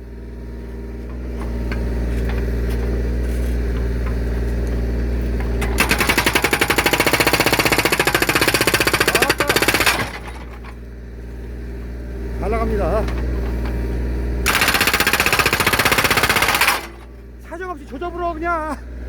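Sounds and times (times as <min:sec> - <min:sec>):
diesel engine running: 0:00.0 - 0:19.0
hydraulic breaker hammering wood: 0:05.4 - 0:10.8, 0:12.6 - 0:17.2.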